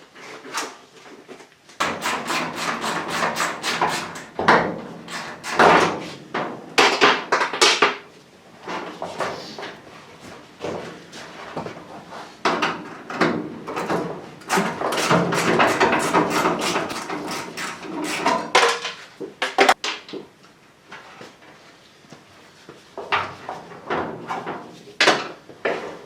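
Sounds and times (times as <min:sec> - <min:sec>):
tools clanking on car body: 0:01.8 - 0:08.0, 0:12.4 - 0:20.1.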